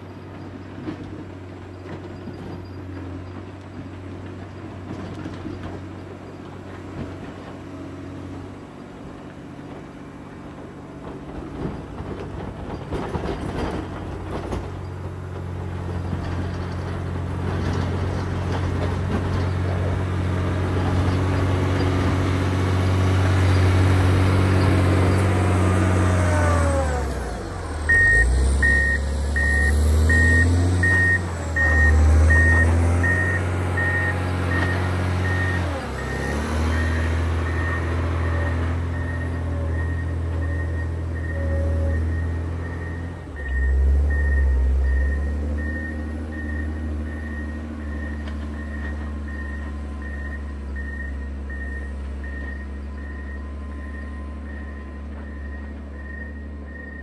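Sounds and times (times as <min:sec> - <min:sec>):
diesel engine working under load: 0:00.0 - 0:57.0
reversing alarm beeping: 0:23.4 - 0:57.0.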